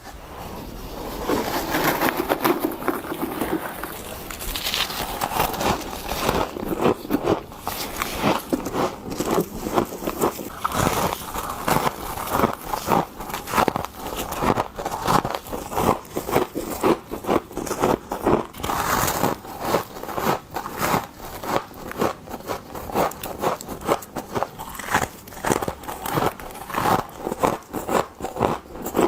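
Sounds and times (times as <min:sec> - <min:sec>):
crunching frost bites: 0:03.0 - 0:16.8.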